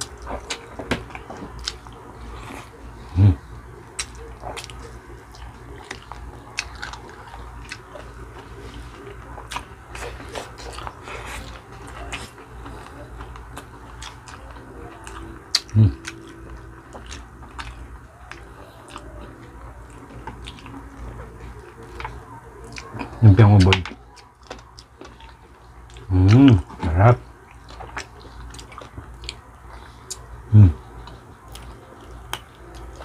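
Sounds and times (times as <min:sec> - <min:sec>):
people chewing and eating: 0:00.0 - 0:33.0.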